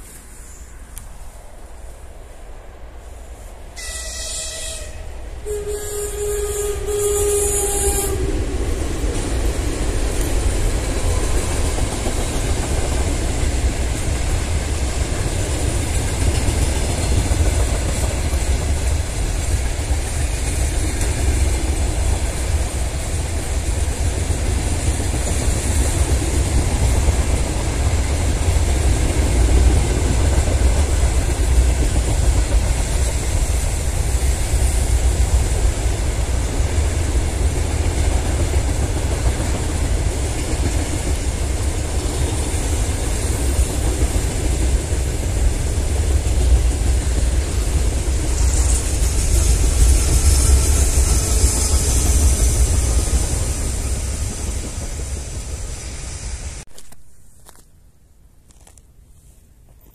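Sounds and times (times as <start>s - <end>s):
locomotive horn blast: 3.8s - 8.3s
train wagons rumbling and clattering: 6.2s - 57.6s.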